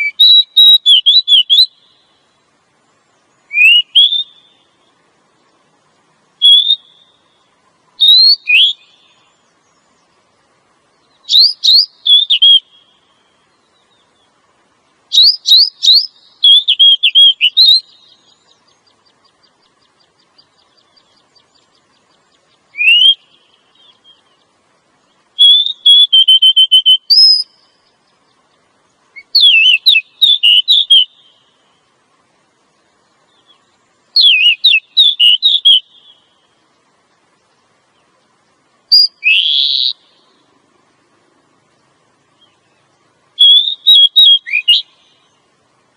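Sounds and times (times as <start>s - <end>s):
bird whistling calls: 0.0s - 2.2s, 3.4s - 4.8s, 6.4s - 7.4s, 8.0s - 9.9s, 11.1s - 14.3s, 15.1s - 24.6s, 25.4s - 28.0s, 29.2s - 31.8s, 34.2s - 36.4s, 38.9s - 40.4s, 43.4s - 45.4s.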